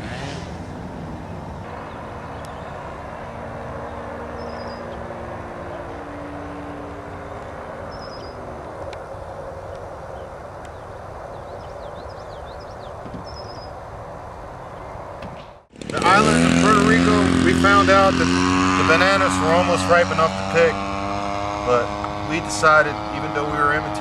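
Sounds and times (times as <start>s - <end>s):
bird chirping: 0.0s - 15.1s
model airplane engine droning: 0.0s - 24.0s.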